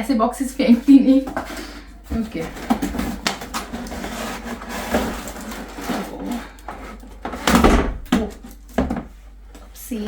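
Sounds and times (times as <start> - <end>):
cardboard packaging rustling: 2.2 - 8.7.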